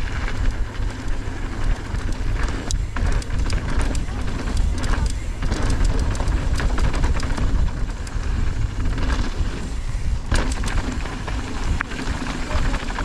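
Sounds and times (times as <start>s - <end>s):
bike rattling over rocks: 0.0s - 13.0s
sharp clatter: 0.0s - 13.0s
wind buffeting microphone: 0.0s - 13.0s.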